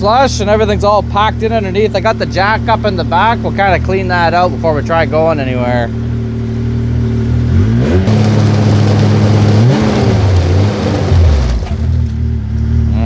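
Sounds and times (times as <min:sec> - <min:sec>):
snowmobile engine revving: 0:08.0 - 0:12.1
track throwing out slush: 0:08.1 - 0:12.3.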